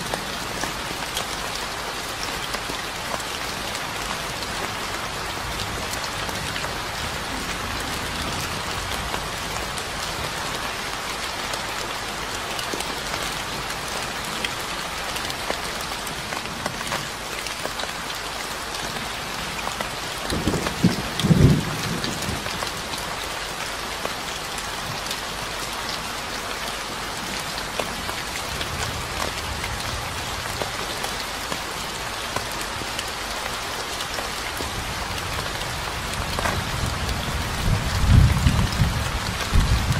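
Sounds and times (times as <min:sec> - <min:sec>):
steady rain falling: 0:00.0 - 0:39.9
thunder rumble: 0:36.8 - 0:39.9.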